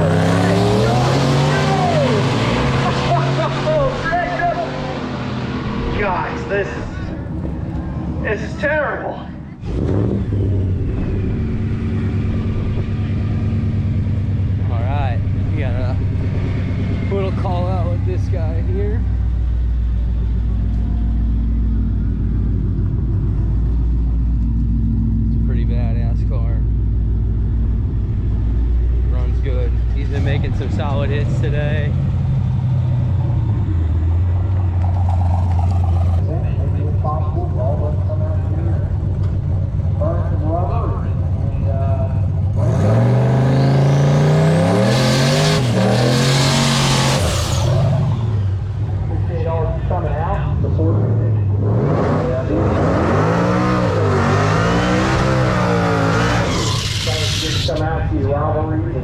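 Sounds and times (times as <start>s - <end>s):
race car engine at high revs: 0.0s - 8.8s, 9.5s - 58.4s
drag car engine idling: 17.4s - 42.6s.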